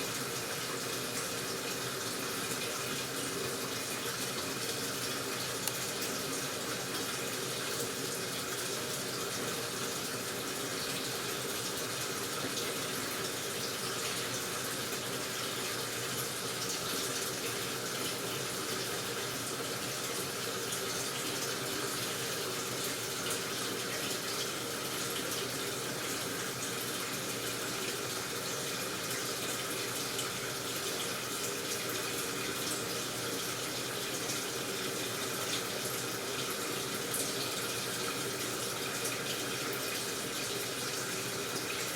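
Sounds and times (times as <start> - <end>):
water filling washing machine: 0.0 - 41.9.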